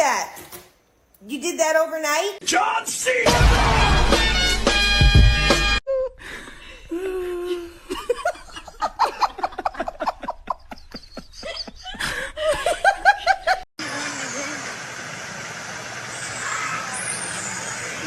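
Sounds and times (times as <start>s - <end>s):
music: 3.3s - 5.8s
person laughing: 5.9s - 13.6s.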